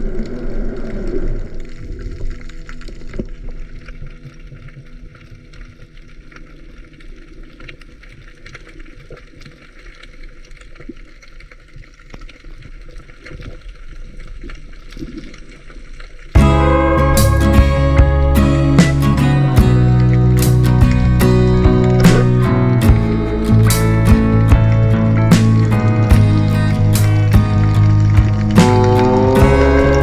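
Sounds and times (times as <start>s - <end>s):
sharp underwater clicks and crackles: 0.0s - 16.3s, 19.9s - 30.0s
loud guitar music: 16.4s - 30.0s.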